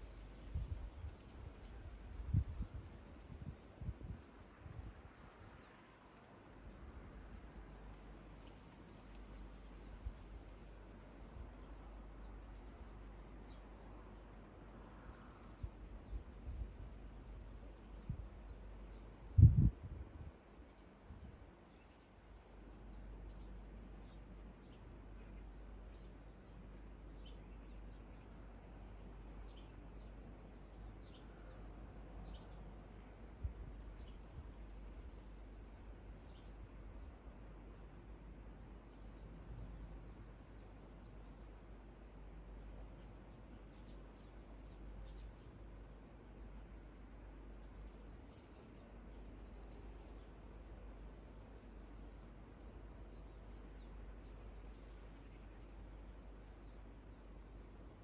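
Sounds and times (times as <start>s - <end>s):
crickets trilling: 0.0s - 58.0s
faint bird chirps: 29.4s - 32.8s.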